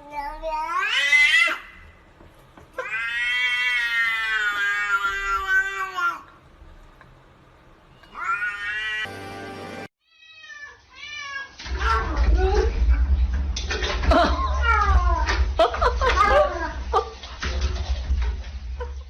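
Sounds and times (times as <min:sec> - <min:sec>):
cat yowling: 0:02.8 - 0:06.2, 0:08.1 - 0:09.1.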